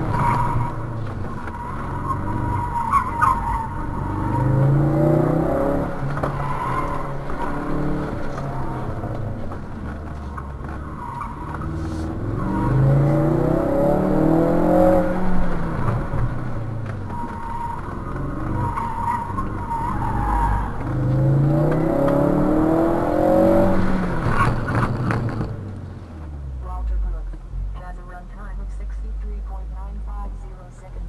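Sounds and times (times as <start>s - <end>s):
car engine revving: 0.0s - 31.0s
tyres squealing: 17.0s - 21.3s.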